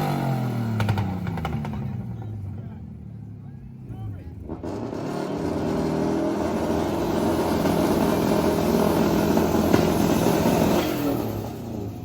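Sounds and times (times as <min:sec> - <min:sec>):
car engine at high revs: 0:00.0 - 0:02.6, 0:04.4 - 0:12.0.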